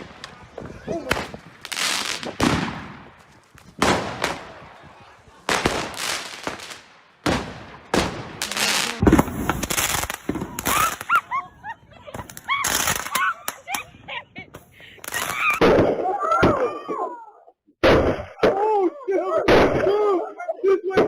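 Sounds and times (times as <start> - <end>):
fireworks bangs: 0.0 - 13.8, 14.5 - 16.1
rapid crackling fireworks: 0.0 - 13.8, 14.5 - 16.0.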